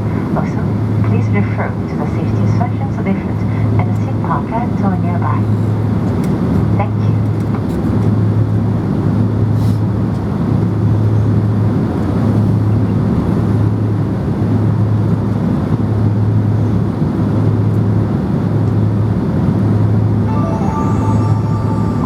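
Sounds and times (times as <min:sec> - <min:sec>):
airplane cabin hum: 0:00.0 - 0:08.6.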